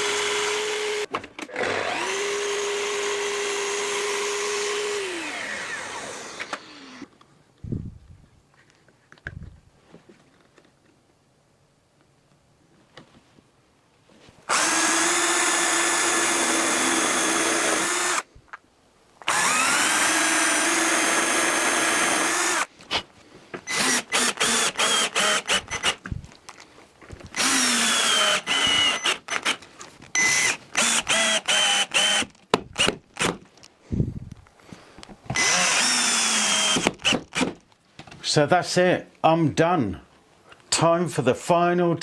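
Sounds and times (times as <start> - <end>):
power drill running: 0.0 - 7.1, 14.5 - 18.3, 19.2 - 22.7, 23.6 - 26.0, 27.3 - 33.3, 35.3 - 37.5.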